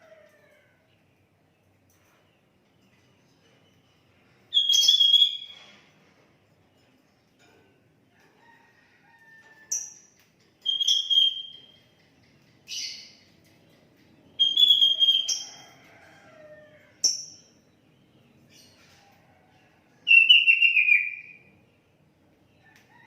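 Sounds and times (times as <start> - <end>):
bird whistling song: 4.5 - 5.7, 10.6 - 12.0, 14.4 - 15.5, 20.1 - 21.5.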